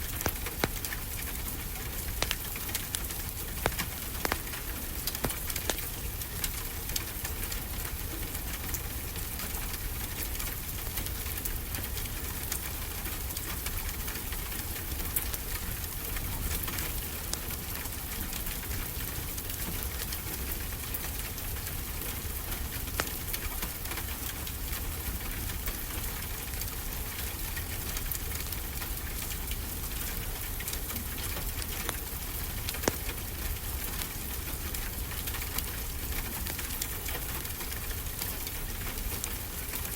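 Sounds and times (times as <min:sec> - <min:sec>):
fireplace crackling: 0:00.0 - 0:06.6, 0:30.3 - 0:35.7.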